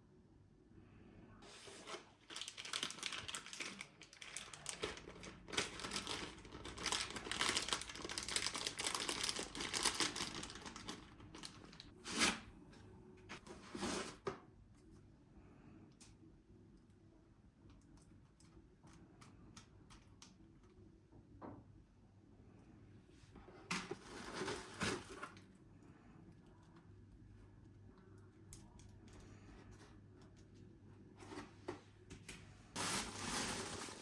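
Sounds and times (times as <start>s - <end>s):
packaging crinkling and tearing: 1.5s - 12.4s, 32.8s - 34.0s.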